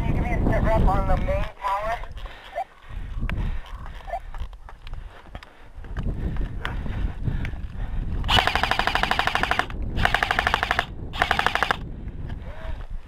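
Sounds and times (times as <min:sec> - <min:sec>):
airsoft gun automatic fire: 0:08.3 - 0:11.8.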